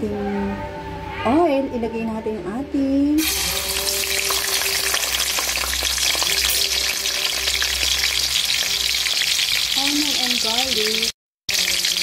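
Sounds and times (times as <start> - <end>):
onion sizzling in oil: 3.2 - 12.0.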